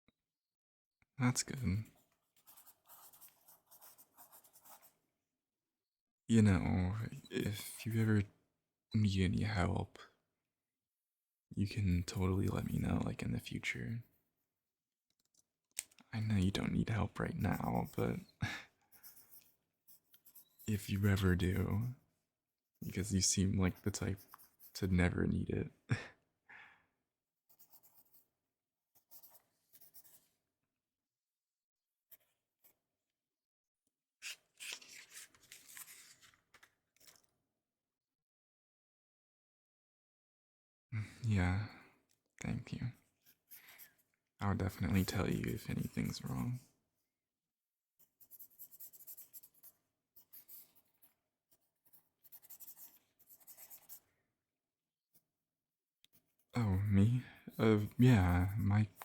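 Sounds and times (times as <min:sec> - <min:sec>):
pen scratching on paper: 0:01.8 - 0:05.0, 0:17.3 - 0:18.3, 0:18.9 - 0:22.0, 0:23.7 - 0:25.0, 0:27.5 - 0:30.2, 0:44.5 - 0:46.4, 0:48.0 - 0:54.1, 0:56.1 - 0:59.0.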